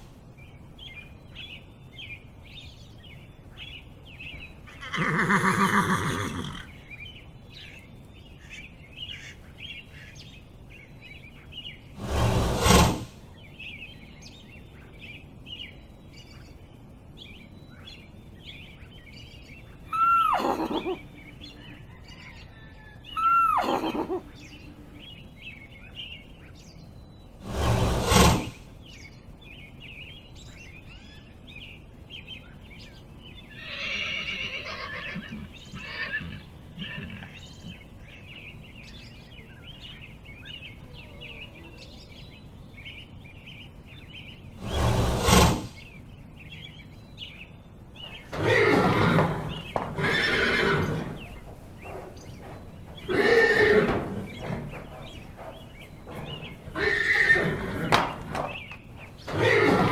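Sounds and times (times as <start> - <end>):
small birds chirping: 0.0 - 59.9
horse whinnying: 4.7 - 6.8, 19.9 - 21.0, 23.2 - 24.3, 33.5 - 37.4, 44.6 - 45.8, 48.1 - 59.9
horse snorting: 4.8 - 6.7, 12.0 - 13.3, 27.4 - 28.7, 44.6 - 45.9, 48.1 - 59.9.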